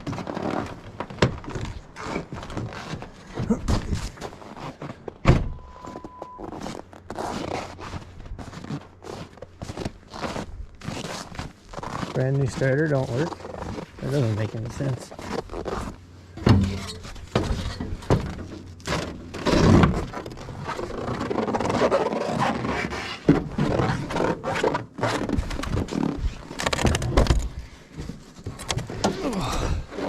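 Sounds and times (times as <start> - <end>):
loud thump: 16.4 - 16.9
knocks and thuds of handling things: 16.4 - 20.2.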